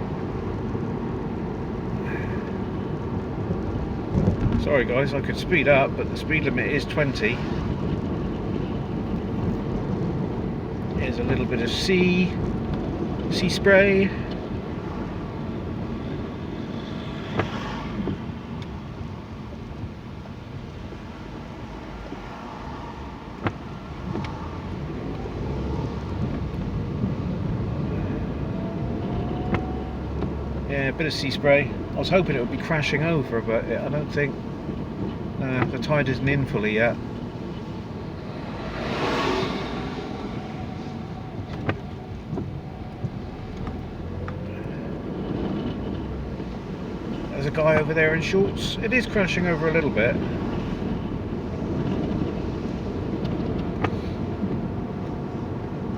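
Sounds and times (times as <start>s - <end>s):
road and engine rumble: 0.0s - 55.9s
broad rushing sound: 36.6s - 42.0s.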